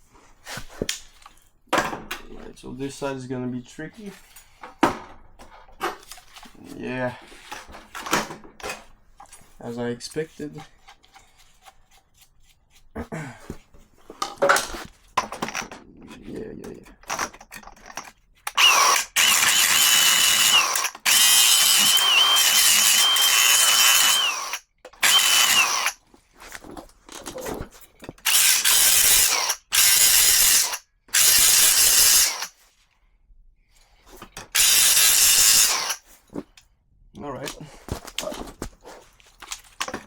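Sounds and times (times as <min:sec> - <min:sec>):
power drill boring into metal: 0:18.5 - 0:26.0, 0:28.2 - 0:32.6, 0:34.5 - 0:36.0.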